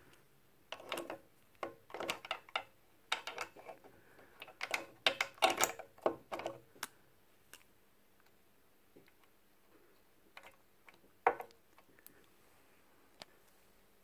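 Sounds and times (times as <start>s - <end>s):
metal and plastic parts clicking: 0.7s - 3.8s, 4.4s - 6.9s.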